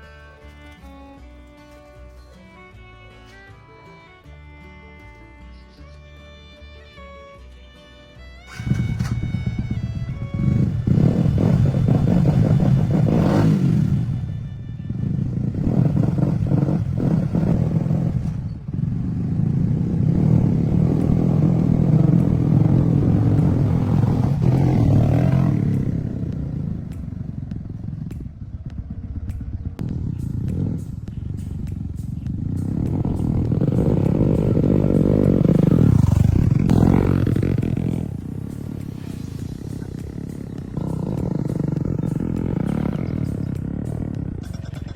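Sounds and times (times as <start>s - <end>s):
motorcycle engine revving: 8.4s - 44.9s.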